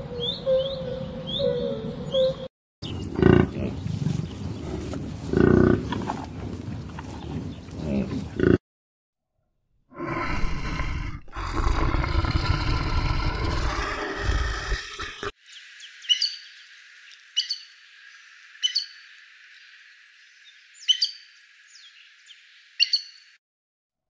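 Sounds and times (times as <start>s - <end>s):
bird chirping: 0.0s - 3.2s, 15.4s - 23.4s
large animal roaring: 9.9s - 15.4s.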